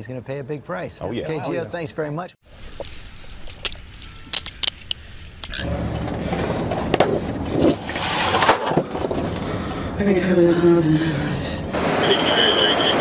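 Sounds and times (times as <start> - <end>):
vehicle engine rumbling: 2.5 - 13.0
sharp clicks: 2.8 - 5.7.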